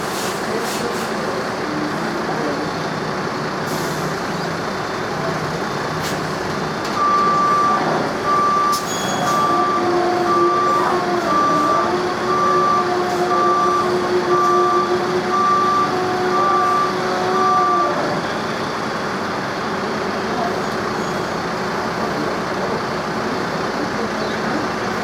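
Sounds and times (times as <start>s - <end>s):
reversing alarm beeps: 6.9s - 18.1s.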